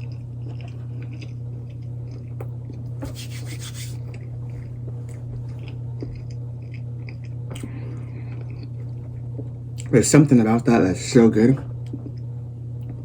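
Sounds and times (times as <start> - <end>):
chewing sandwich: 0.0 - 10.0
steady low hum: 0.0 - 13.0.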